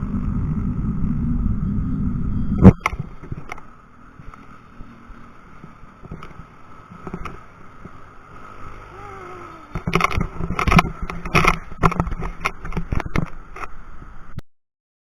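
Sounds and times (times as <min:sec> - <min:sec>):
wind: 0:00.0 - 0:14.4
bicycle rolling over rough ground: 0:02.9 - 0:14.0
bike knocking and rattling: 0:09.7 - 0:13.5.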